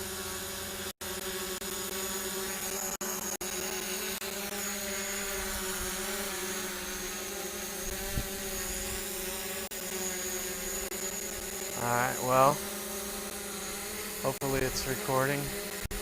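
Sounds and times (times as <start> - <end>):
drone propellers humming: 6.7 - 16.0.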